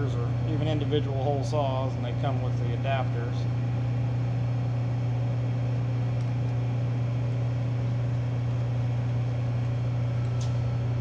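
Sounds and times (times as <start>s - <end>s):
low electric hum: 0.0s - 11.0s.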